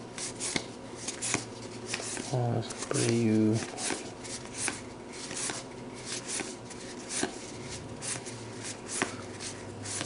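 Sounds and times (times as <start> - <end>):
cards swishing off a stack: 3.8 - 9.2.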